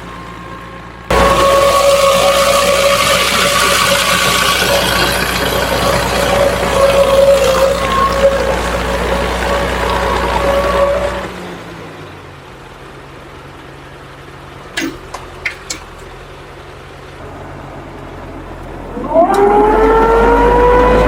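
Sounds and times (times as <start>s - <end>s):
motor whine: 0.0s - 11.3s, 17.2s - 21.0s
low hum: 17.2s - 21.0s.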